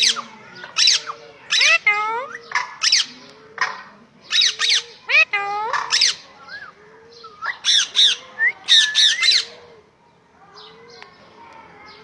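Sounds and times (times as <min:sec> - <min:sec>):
parrot squawking: 0:00.0 - 0:03.1, 0:04.3 - 0:06.3, 0:07.4 - 0:09.5.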